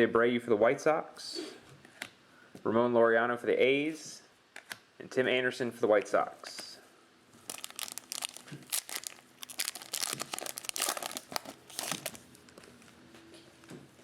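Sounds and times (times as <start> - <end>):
card pack wrapper crinkling: 7.4 - 12.6.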